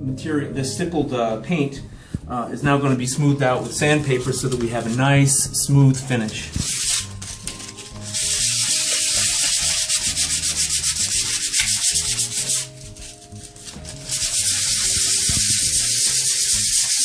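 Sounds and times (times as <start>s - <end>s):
sandpaper rubbing on paint: 6.5s - 17.0s.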